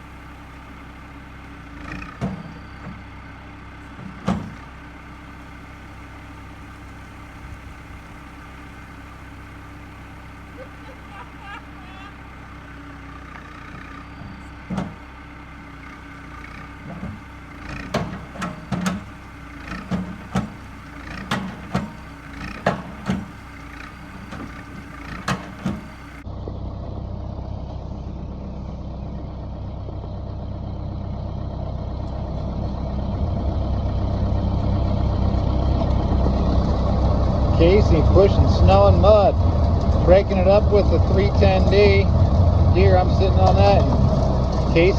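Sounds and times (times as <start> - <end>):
heavy equipment engine running: 0.0 - 44.9
sharp knocks and bangs: 4.0 - 4.7, 16.7 - 26.2.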